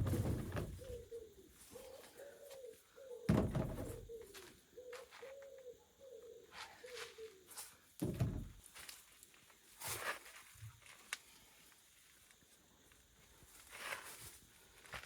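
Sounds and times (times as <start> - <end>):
dove cooing: 0.5 - 7.5.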